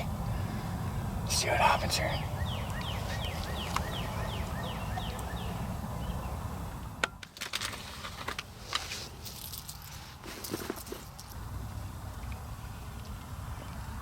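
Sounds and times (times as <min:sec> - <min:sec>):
steady low rumble: 0:00.0 - 0:07.2
songbird whistling: 0:02.4 - 0:06.3
handling clicks and rustles: 0:07.0 - 0:11.4.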